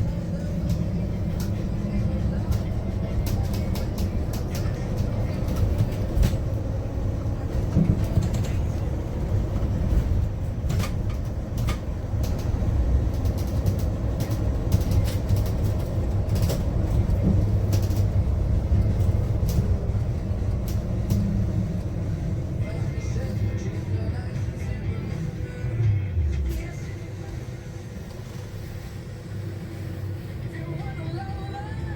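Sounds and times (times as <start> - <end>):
low road rumble: 0.0 - 31.9
cabin clicks and rattles: 0.2 - 21.6.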